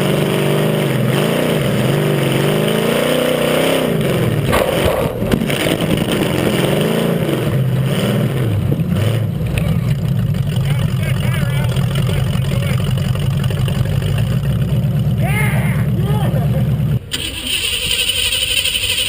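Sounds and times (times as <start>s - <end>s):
racing truck engine revving: 0.0s - 19.0s.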